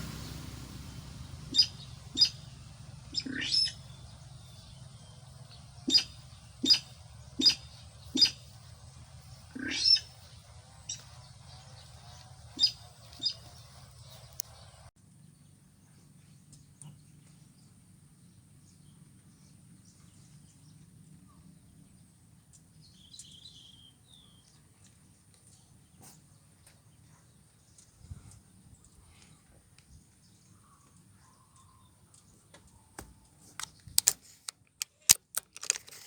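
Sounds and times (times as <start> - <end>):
outdoor field ambience: 0.0 - 36.0
bird chirps: 1.0 - 8.6, 11.8 - 13.6
sharp clicks: 33.0 - 36.0.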